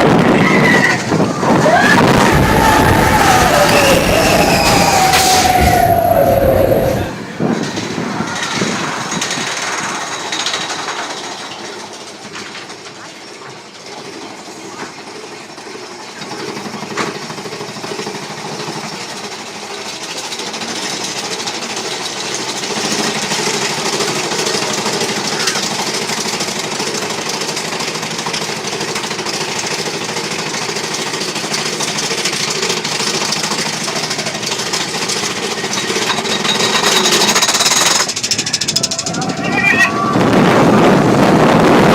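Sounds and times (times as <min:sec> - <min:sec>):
roller coaster cars rattling: 0:00.0 - 0:41.9.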